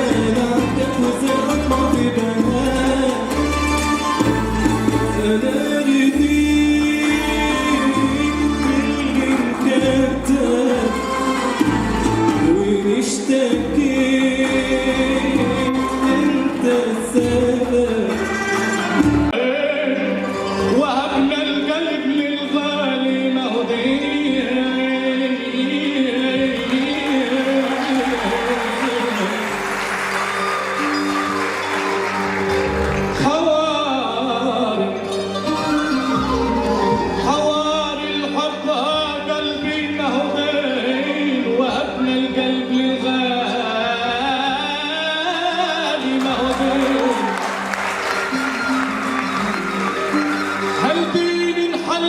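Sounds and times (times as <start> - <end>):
person singing ornamented melody: 0.0 - 32.0
instrumental accompaniment: 0.0 - 52.0
choir singing: 26.4 - 32.4.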